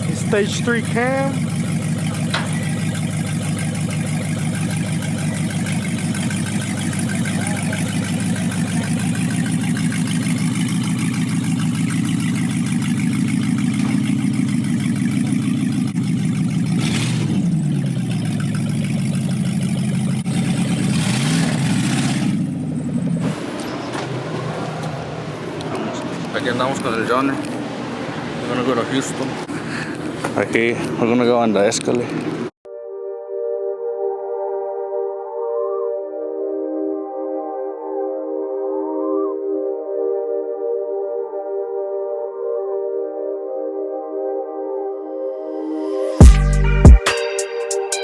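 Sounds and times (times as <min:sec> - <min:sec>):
car engine idling with lope: 0:00.0 - 0:32.5
car engine revving: 0:00.0 - 0:32.6.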